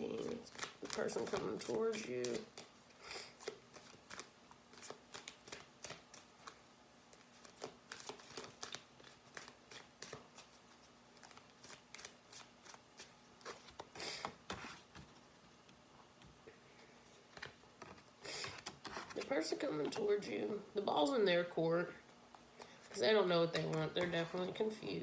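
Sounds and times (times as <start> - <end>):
cards shuffled by hand: 0.1 - 15.1.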